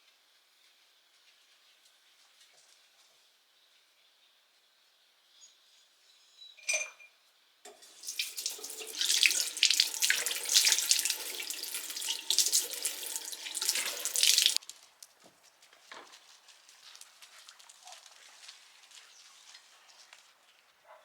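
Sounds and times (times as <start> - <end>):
tap water running into sink: 7.7 - 14.6.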